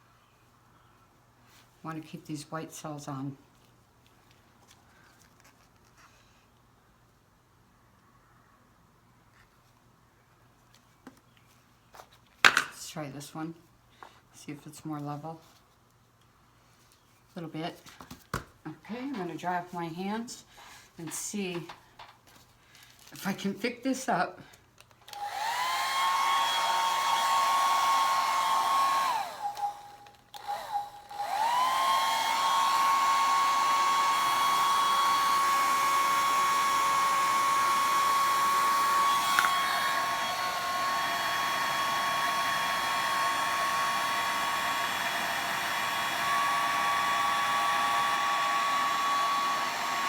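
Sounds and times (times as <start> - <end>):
blow dryer running: 25.1 - 50.0.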